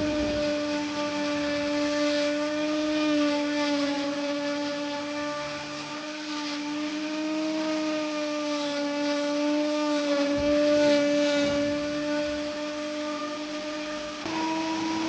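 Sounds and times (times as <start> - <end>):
electric polisher humming: 0.0 - 15.0
polishing pad rubbing: 0.0 - 15.0.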